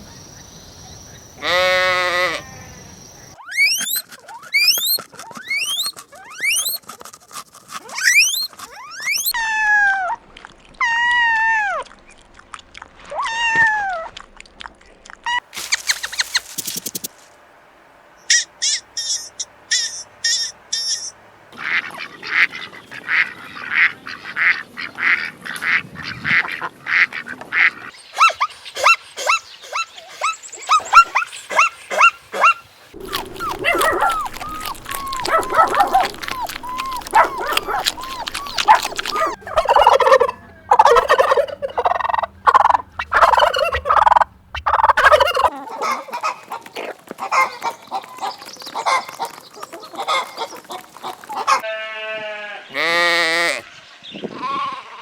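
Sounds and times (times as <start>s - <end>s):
poultry honking: 1.4s - 2.8s, 33.0s - 45.5s
warbling gliding bird calls: 3.5s - 6.8s, 33.0s - 48.0s
high poultry calls: 33.0s - 51.8s.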